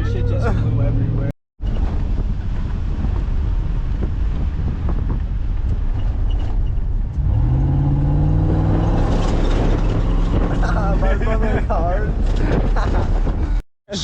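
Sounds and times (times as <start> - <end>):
car rumbling over rough ground: 0.0 - 13.6
car engine revving: 7.0 - 11.6.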